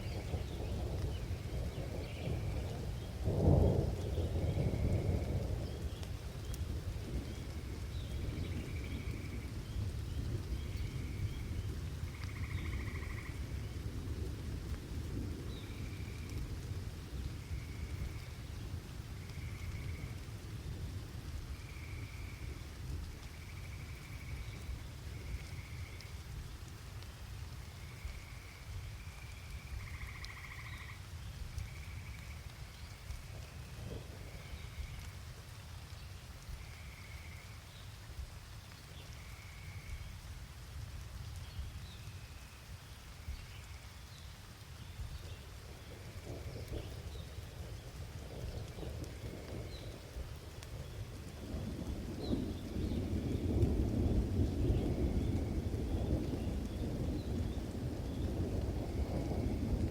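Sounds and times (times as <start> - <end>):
thunder rumbling: 0.0 - 26.1, 33.0 - 35.2, 45.4 - 59.9
rain: 0.0 - 59.9.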